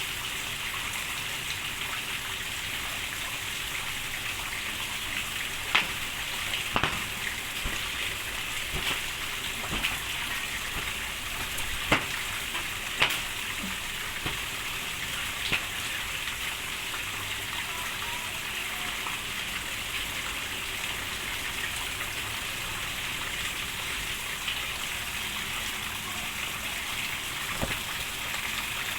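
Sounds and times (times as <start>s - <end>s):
steady rain: 0.0s - 28.9s
sharp drop impacts: 5.6s - 14.8s.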